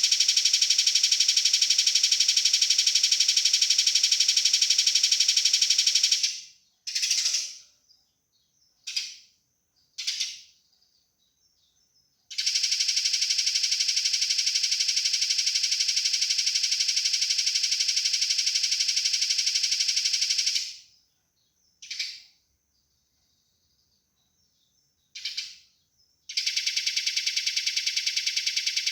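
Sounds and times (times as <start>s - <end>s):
sparrow buzzy rattle call: 0.0s - 7.8s, 8.8s - 9.4s, 10.0s - 10.6s, 12.3s - 21.0s, 21.8s - 22.4s, 25.0s - 28.9s.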